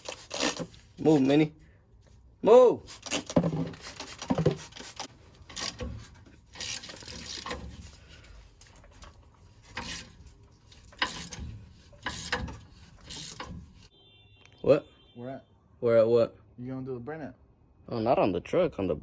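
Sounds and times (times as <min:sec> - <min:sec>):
hand tool scraping: 0:00.0 - 0:01.5, 0:02.9 - 0:13.9.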